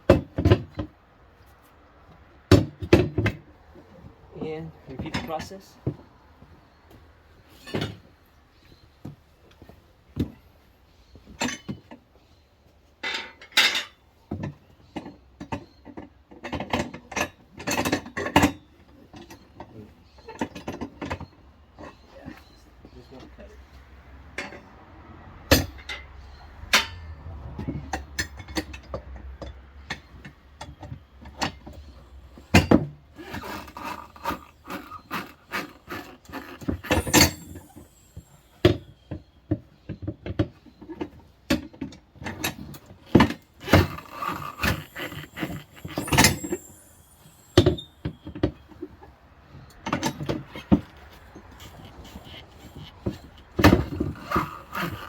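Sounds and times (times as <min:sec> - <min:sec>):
metal clanks and knocks: 0:25.5 - 0:48.6.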